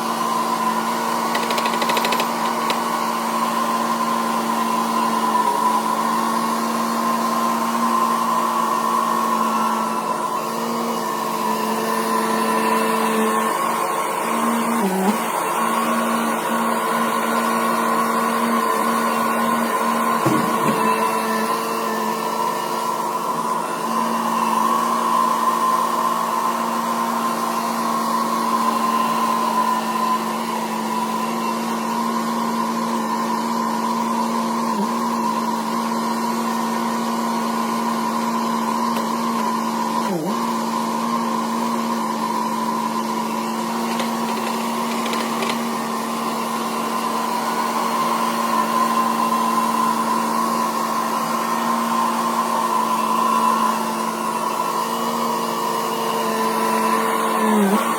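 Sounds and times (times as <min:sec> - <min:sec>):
small motor running at high speed: 0:00.0 - 0:57.9.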